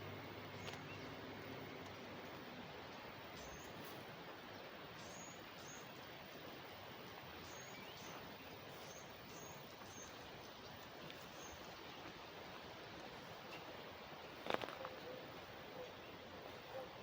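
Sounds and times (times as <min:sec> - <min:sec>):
water flowing in a canal: 0:00.0 - 0:17.0
small bird chirping: 0:02.9 - 0:06.4, 0:07.4 - 0:16.8.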